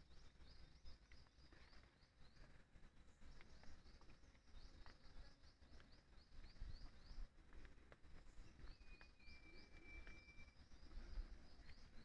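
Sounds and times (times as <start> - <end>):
faint forest ambience: 0.0 - 12.0
long level bird whistle: 8.2 - 12.0.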